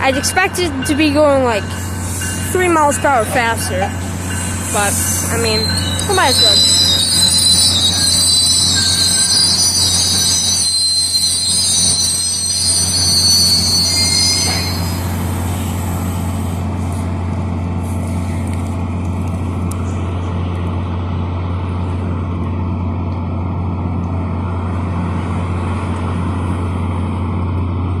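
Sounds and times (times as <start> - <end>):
train wheels squealing on rails: 0.0 - 17.2
train rumbling: 0.0 - 28.0.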